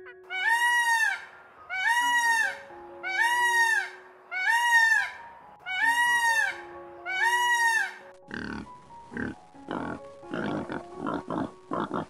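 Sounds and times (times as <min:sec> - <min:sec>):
peacock honking call: 0:00.0 - 0:08.1
soft background music: 0:00.0 - 0:12.0.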